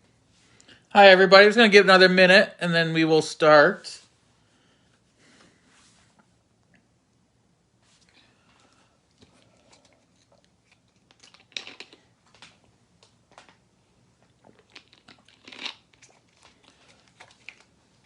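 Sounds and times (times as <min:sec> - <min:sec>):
crinkling and clicking handling noises: 0:08.0 - 0:18.0.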